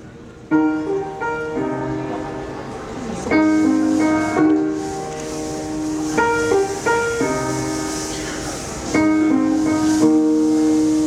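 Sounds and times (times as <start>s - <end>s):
piano playing slow chords: 0.4s - 11.0s.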